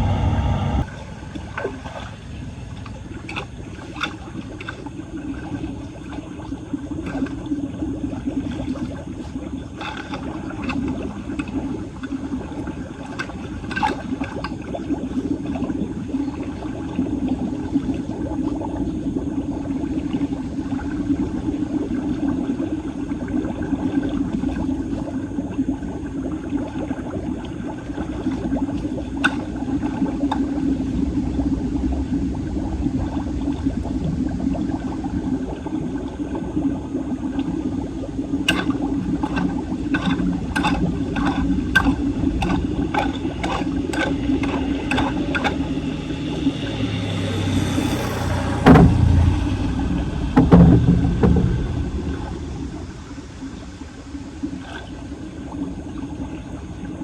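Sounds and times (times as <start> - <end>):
heavy low thumps: 0.0 - 0.9, 48.2 - 54.4
water rushing into a drain: 0.0 - 57.0.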